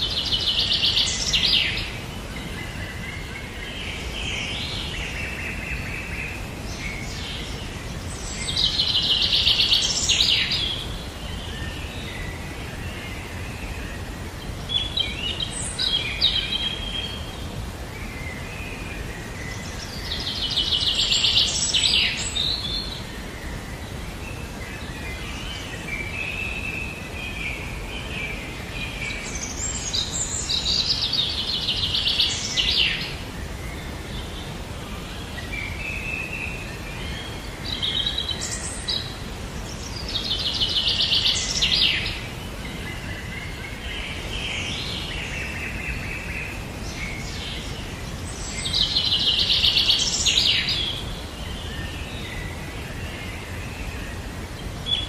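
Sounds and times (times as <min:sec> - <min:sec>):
songbird singing with high trill: 0:35.2 - 0:55.0.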